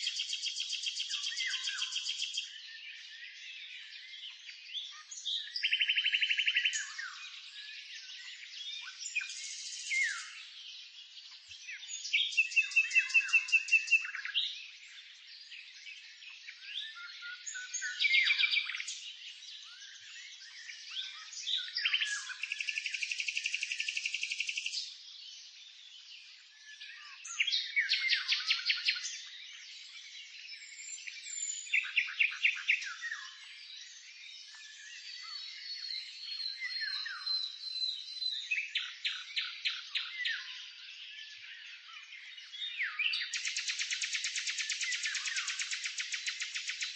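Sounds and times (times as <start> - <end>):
soft bird twittering: 0.0 - 46.9
songbirds chirping: 0.0 - 46.9
bird trill: 42.8 - 46.9.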